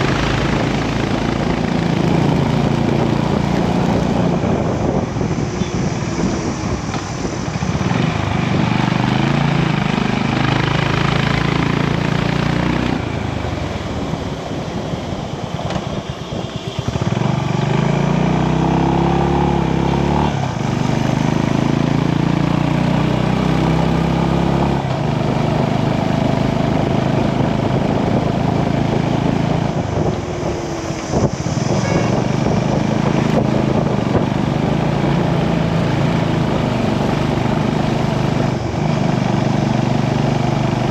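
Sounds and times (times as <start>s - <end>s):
motorcycle engine accelerating: 0.0s - 40.9s
wind noise: 0.0s - 40.9s.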